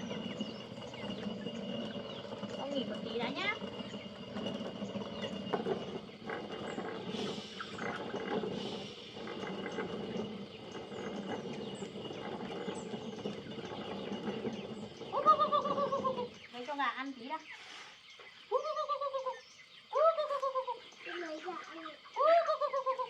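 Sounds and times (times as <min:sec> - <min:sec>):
stone mill grinding: 0:00.0 - 0:16.8.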